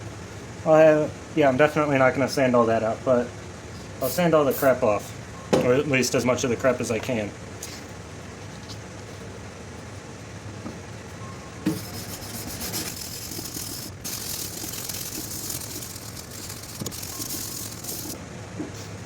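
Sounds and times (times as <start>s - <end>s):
sandpaper rubbing on steel blade: 11.7s - 18.2s.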